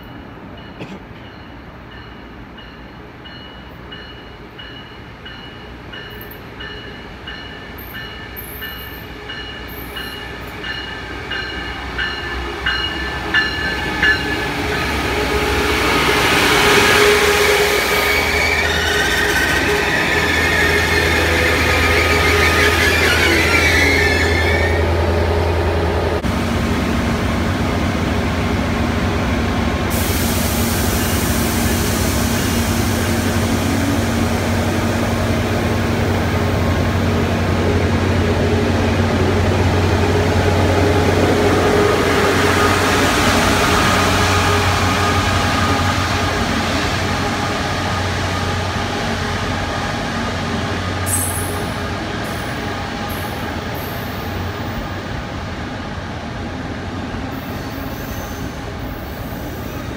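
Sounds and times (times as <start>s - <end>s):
locomotive engine drone: 10.2s - 57.2s
high wheel squeal: 16.8s - 25.0s.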